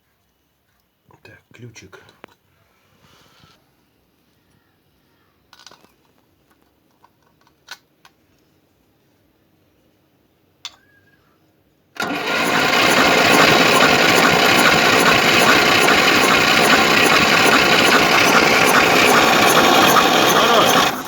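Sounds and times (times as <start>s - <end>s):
click: 10.6s - 10.8s
starter cranking engine: 12.0s - 21.0s.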